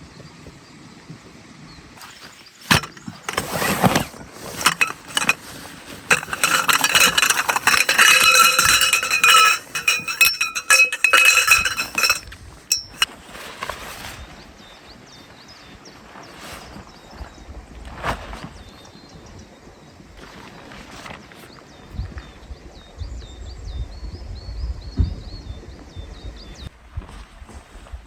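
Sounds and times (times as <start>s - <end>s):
camp gear clinking and rattling: 2.0s - 13.9s
metallic ringing: 2.7s - 13.1s.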